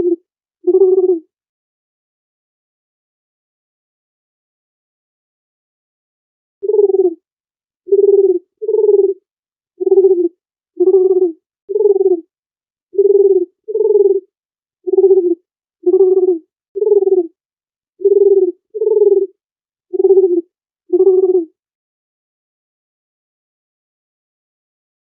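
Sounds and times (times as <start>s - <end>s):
dove cooing: 0.0s - 1.2s, 6.6s - 7.2s, 7.9s - 9.2s, 9.8s - 12.3s, 13.0s - 14.3s, 14.9s - 17.4s, 18.0s - 21.5s.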